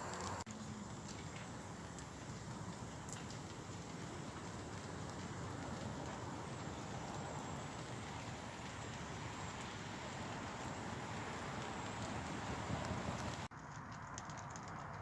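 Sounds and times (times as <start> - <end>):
light rain falling: 0.0 - 15.0
ticks of raindrops: 0.0 - 15.0.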